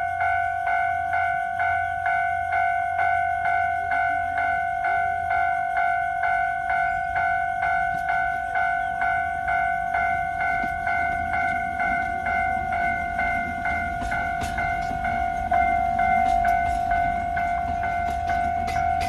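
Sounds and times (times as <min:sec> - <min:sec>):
level crossing warning bell: 0:00.0 - 0:19.0
faint low train rumble: 0:04.3 - 0:19.0.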